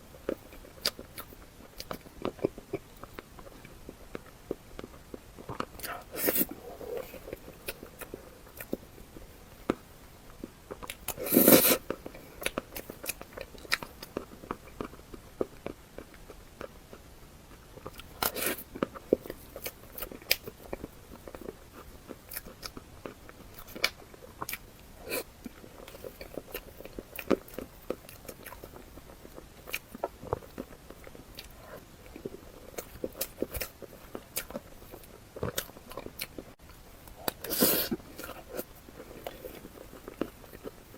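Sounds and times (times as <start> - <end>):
crunching mouth sounds: 0.0 - 40.9
close biting and chewing: 10.7 - 36.4.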